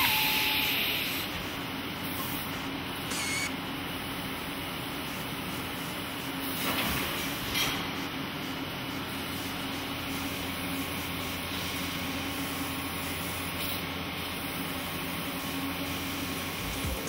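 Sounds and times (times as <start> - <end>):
machine humming: 0.0 - 5.2.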